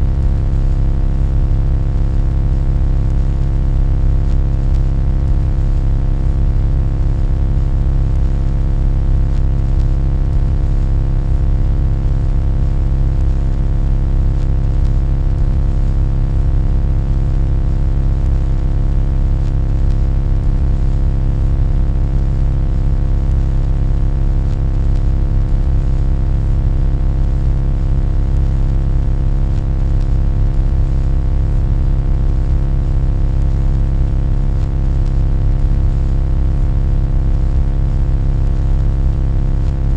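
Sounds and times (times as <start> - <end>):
deep droning hum: 0.0 - 1.6.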